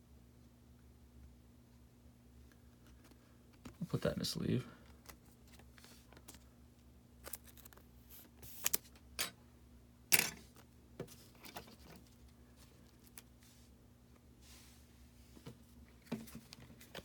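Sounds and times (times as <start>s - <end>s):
faint steady hum: 0.0s - 17.0s
cards clicking and rustling: 7.2s - 9.3s.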